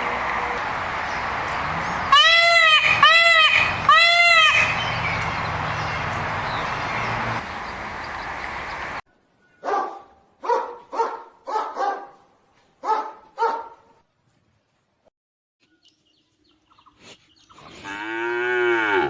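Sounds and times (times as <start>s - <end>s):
dog barking: 9.6s - 14.0s.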